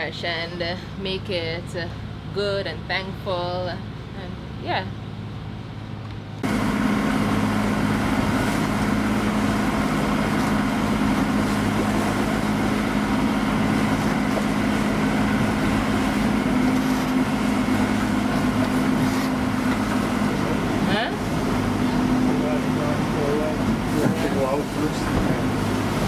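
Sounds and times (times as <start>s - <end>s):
boat engine droning: 0.0s - 26.0s
wind: 0.0s - 26.0s
water noise: 6.4s - 26.0s.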